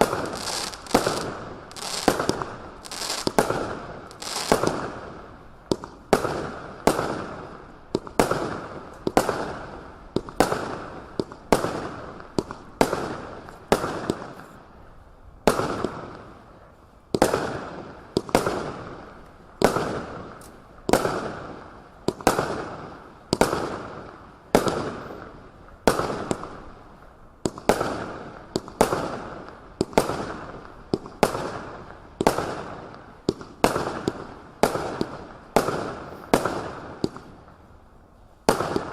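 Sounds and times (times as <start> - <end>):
firework barrage bangs: 0.0 - 5.1.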